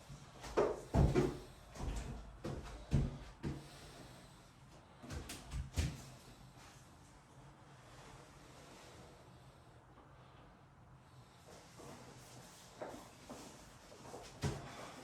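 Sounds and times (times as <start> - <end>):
irregular knocks and thumps: 0.6 - 3.6.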